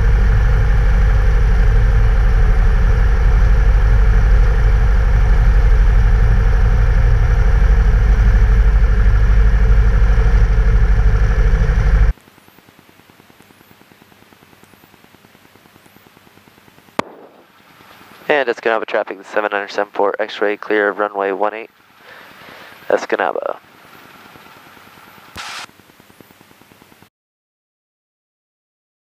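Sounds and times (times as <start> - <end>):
propeller plane engine droning: 0.0 - 12.2, 17.0 - 25.4.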